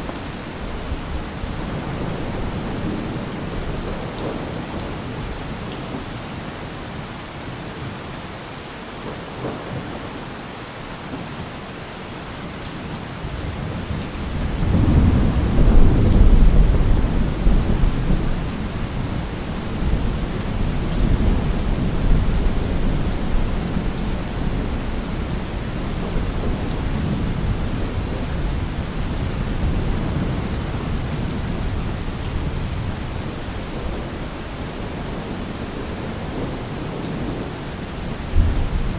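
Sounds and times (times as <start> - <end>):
heavy rain falling: 0.0 - 38.9
low rumble of thunder: 13.3 - 38.9.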